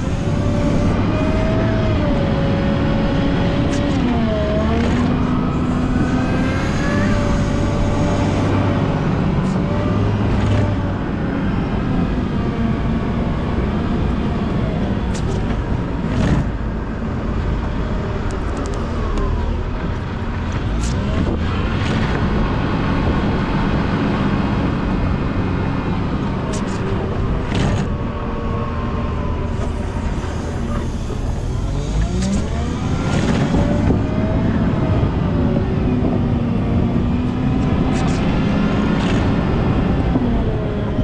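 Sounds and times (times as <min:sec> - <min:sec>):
wheel loader diesel engine: 0:00.0 - 0:41.0.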